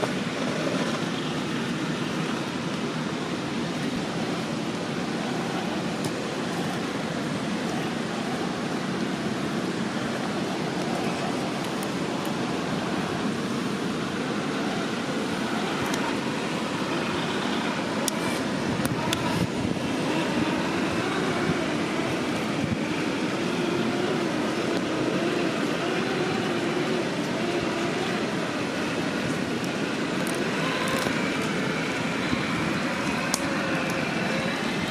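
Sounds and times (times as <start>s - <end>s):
electric motor whining: 12.4s - 34.9s.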